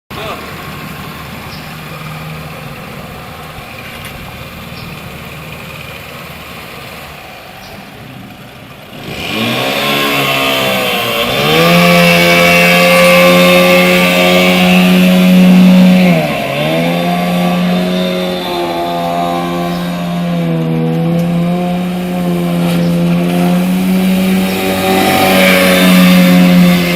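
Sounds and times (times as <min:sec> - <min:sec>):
boat engine revving: 0:08.3 - 0:26.9.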